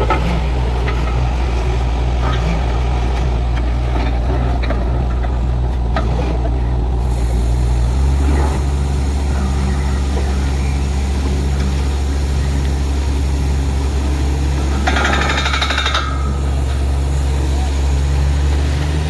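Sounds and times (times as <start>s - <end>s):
drilling rig engine hum: 0.0s - 19.0s
rapid metallic rattle: 0.0s - 19.0s.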